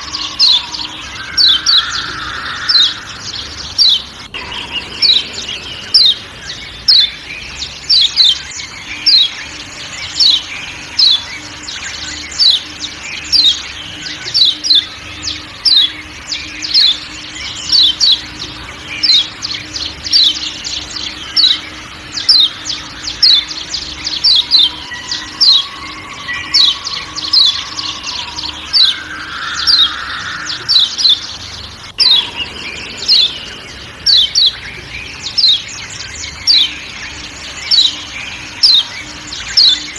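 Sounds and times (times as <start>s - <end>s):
low forest drone: 0.0s - 39.9s
bird's sharp chirping call: 18.9s - 39.9s.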